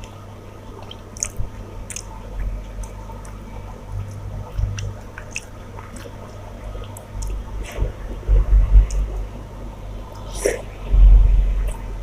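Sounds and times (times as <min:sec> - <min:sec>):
wet chewing of food: 0:00.0 - 0:09.3.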